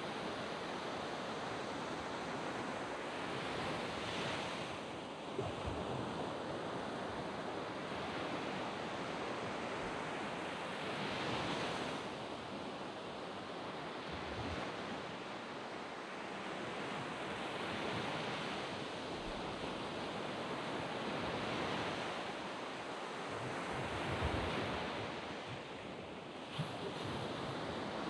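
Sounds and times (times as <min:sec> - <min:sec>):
waves washing onto a beach: 0:00.0 - 0:28.0.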